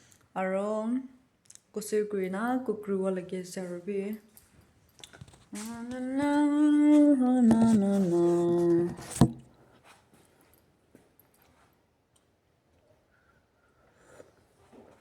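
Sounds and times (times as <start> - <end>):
person humming: 5.6 - 9.1.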